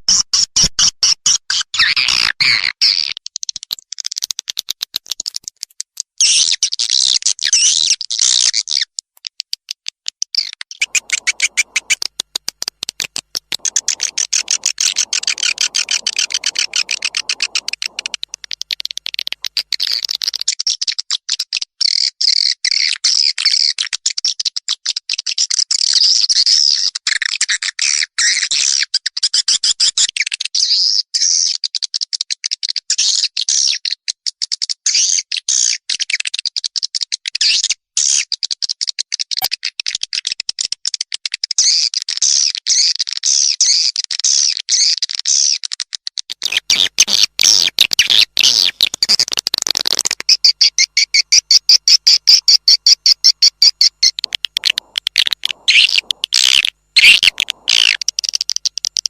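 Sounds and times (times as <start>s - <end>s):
recorded bird twittering: 10.7s - 20.5s, 46.4s - 59.0s.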